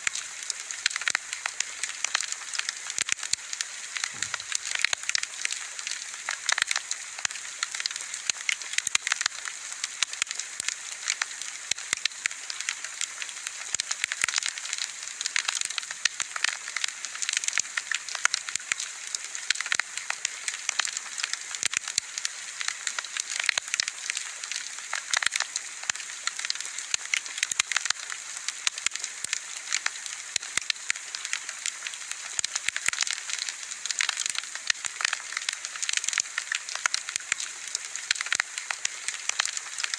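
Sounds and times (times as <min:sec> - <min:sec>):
wood bonfire crackling: 0:00.0 - 0:39.9.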